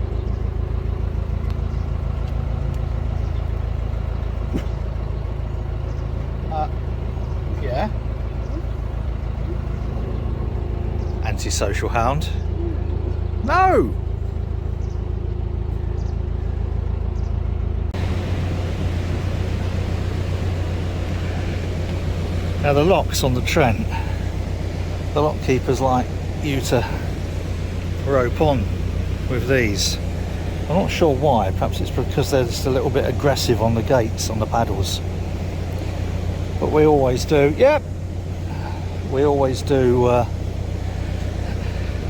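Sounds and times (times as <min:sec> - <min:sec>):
diesel engine running: 0:00.0 - 0:42.0
broad hiss: 0:18.0 - 0:31.6.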